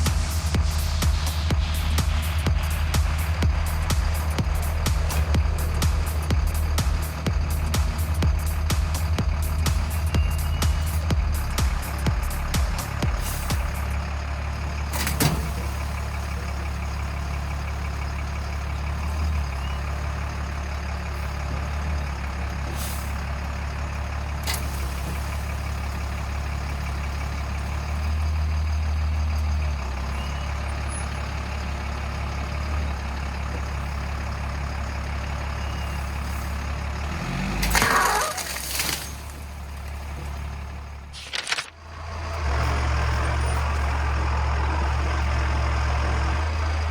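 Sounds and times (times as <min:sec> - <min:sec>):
diesel truck engine running: 0:00.0 - 0:46.9
sharp clicks: 0:41.1 - 0:41.8.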